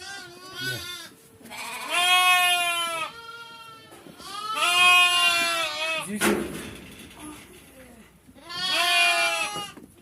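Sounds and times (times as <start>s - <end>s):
goat bleating: 0.0s - 6.1s, 8.4s - 9.8s.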